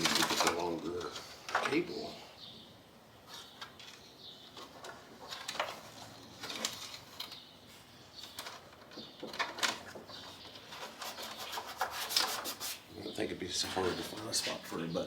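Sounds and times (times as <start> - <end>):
small parts clicking and scraping: 3.3 - 12.4.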